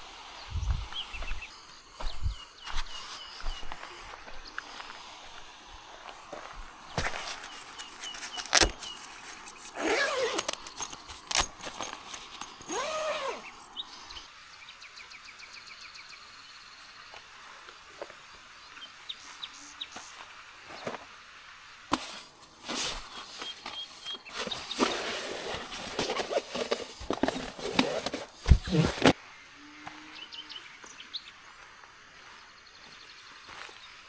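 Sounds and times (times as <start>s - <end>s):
bird calls: 0.0s - 4.9s, 12.4s - 16.9s, 18.0s - 21.0s, 22.0s - 31.5s
rustling: 5.9s - 13.4s, 21.9s - 29.2s.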